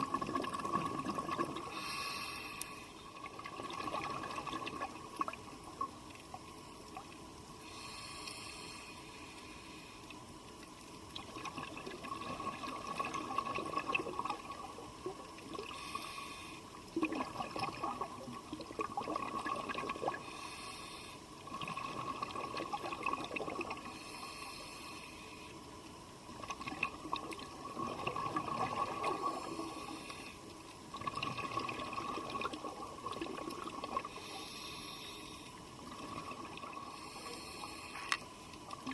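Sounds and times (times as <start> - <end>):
bubbling exhalation underwater: 0.0 - 1.7, 11.2 - 14.8, 17.0 - 20.2, 26.6 - 29.6, 30.9 - 34.2
regulator inhalation hiss: 1.6 - 3.0, 7.6 - 10.1, 15.7 - 16.8, 20.2 - 21.3, 23.9 - 25.6, 29.4 - 30.6, 34.1 - 35.6, 36.9 - 38.2.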